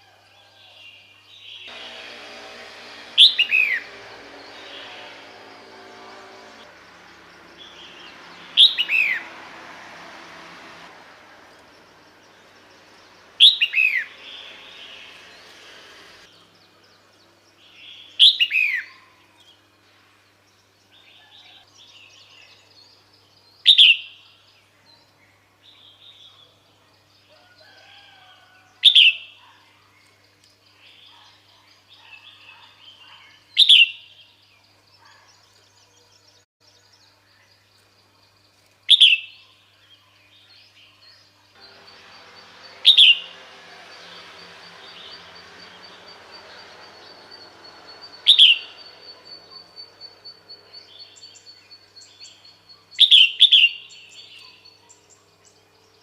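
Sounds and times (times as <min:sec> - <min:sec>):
bird call sweeping down: 0:03.1 - 0:05.1.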